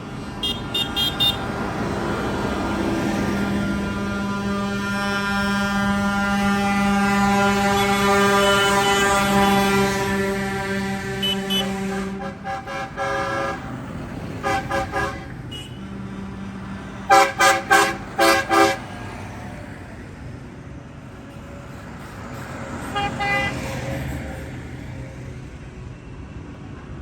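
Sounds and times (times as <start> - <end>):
tractor horns tooting: 0.0 - 1.9, 3.0 - 19.4, 22.8 - 23.9
tractor engines running: 0.0 - 27.0.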